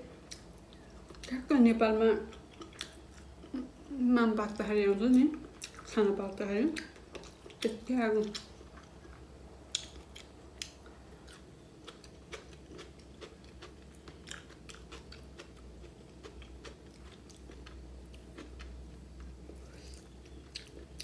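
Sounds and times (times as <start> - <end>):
faint chewing: 0.2 - 1.5, 2.2 - 21.0.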